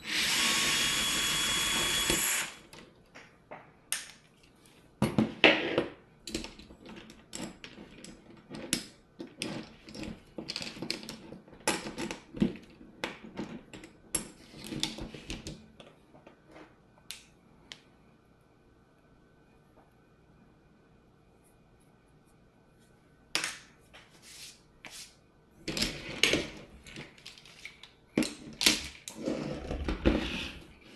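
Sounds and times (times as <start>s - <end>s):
clatter of small tools and parts: 6.3s - 15.9s, 25.7s - 30.6s.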